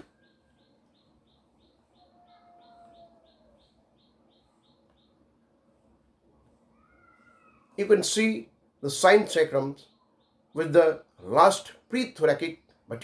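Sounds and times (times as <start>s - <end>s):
faint drawn-out bird call: 0.0s - 5.2s, 6.3s - 7.8s
faint bird chirping rapidly: 0.0s - 5.5s, 6.3s - 7.8s, 9.6s - 10.8s.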